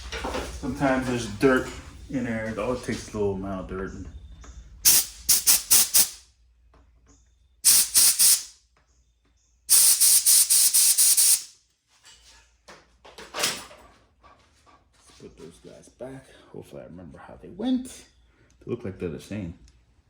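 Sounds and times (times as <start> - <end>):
compressed air hissing: 4.8 - 6.2, 7.6 - 8.5, 9.7 - 11.6.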